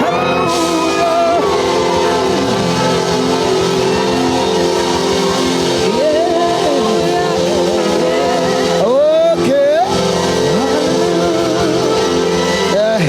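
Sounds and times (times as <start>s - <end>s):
congregation shouting and cheering: 0.0s - 13.0s
held chords of church music: 0.0s - 13.0s.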